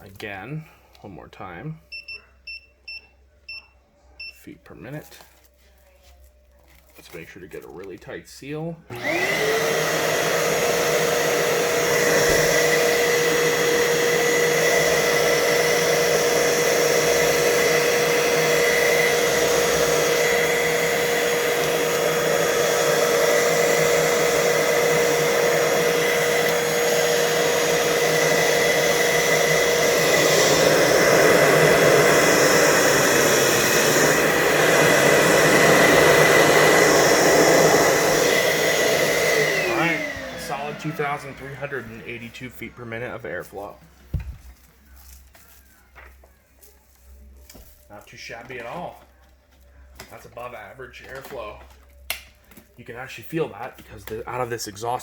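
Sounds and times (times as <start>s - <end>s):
vacuum motor whine: 8.9s - 42.6s.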